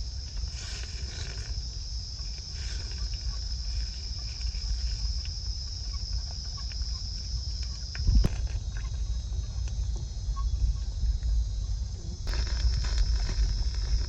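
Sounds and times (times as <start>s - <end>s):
night insects trilling: 0.0s - 14.0s
low rumble: 7.9s - 14.0s.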